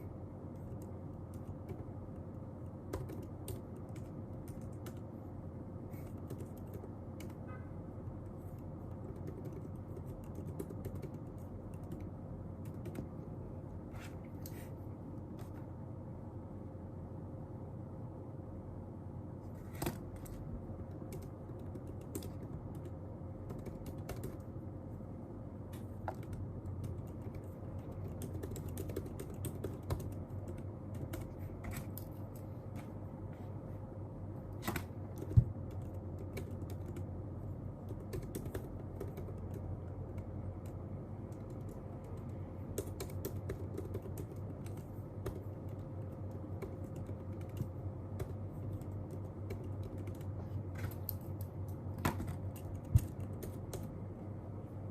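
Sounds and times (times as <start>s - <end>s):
low room hum: 0.0s - 54.9s
typing on computer keyboard: 0.6s - 5.2s, 5.9s - 7.5s, 8.5s - 13.2s, 19.8s - 24.5s, 26.0s - 32.4s, 34.6s - 37.1s, 37.8s - 53.9s.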